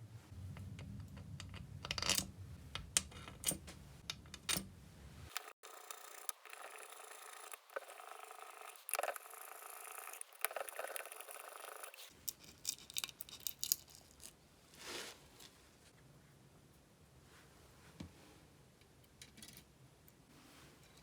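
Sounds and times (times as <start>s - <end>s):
small metal parts clinking: 5.3s - 14.4s.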